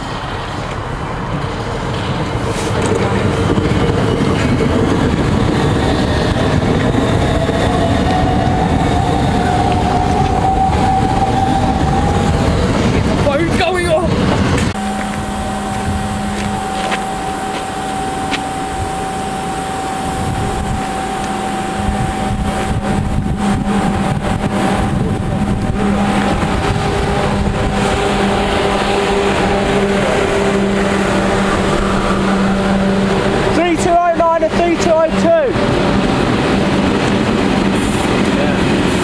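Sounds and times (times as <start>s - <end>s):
high-speed train rumble: 0.0s - 39.0s
steady electric hum: 14.8s - 27.5s.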